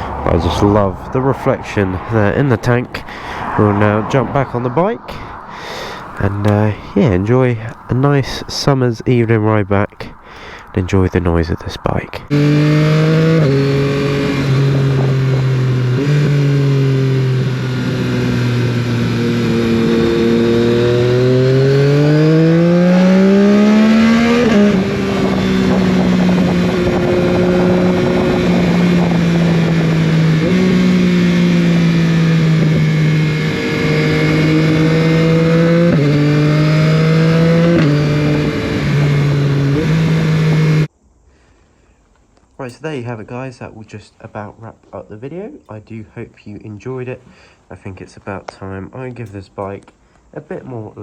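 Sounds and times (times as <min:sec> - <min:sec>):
motorcycle engine revving: 0:00.0 - 0:05.0, 0:05.6 - 0:08.7, 0:12.3 - 0:40.9.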